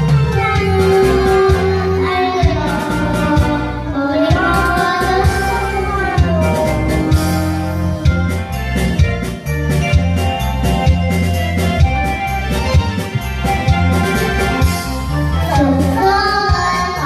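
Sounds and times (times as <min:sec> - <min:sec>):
instrumental backing with bass beat: 0:00.0 - 0:17.0
children's song singing: 0:00.1 - 0:08.6, 0:14.6 - 0:17.0.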